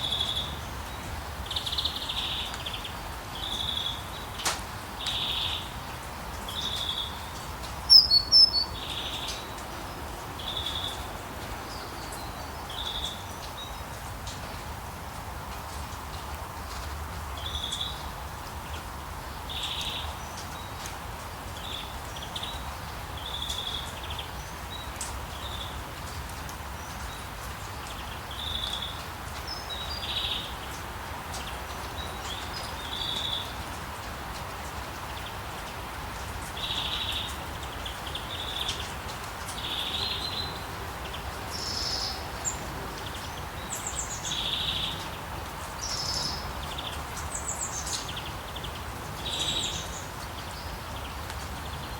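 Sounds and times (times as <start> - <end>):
rain on foliage: 0.0 - 51.9
thin high chirps: 7.9 - 8.7
short high bird calls: 7.9 - 8.8.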